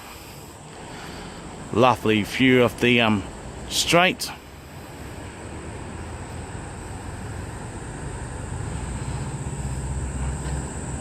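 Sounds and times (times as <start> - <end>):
high-pitched hum: 0.0 - 11.0.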